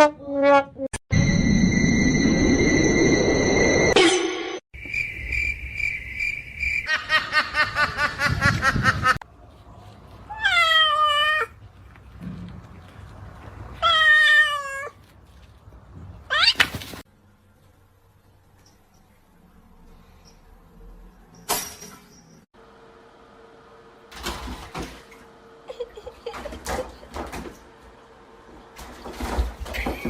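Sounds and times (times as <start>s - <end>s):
pulsing high tone: 1.1s - 6.9s
cat meowing: 10.3s - 11.6s, 13.8s - 15.0s.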